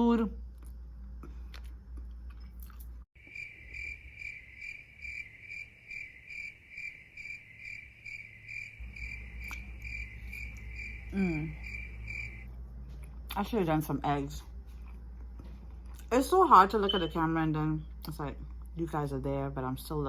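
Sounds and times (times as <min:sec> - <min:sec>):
cricket chirping: 0:03.2 - 0:12.6
short vocal sound: 0:11.1 - 0:11.6.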